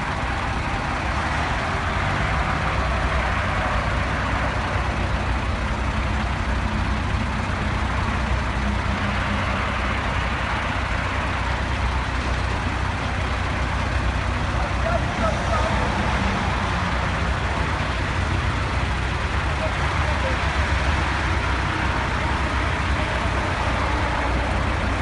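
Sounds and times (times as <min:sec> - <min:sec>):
heavy vehicle engine running: 0:00.0 - 0:25.0
street and traffic noise: 0:00.0 - 0:25.0.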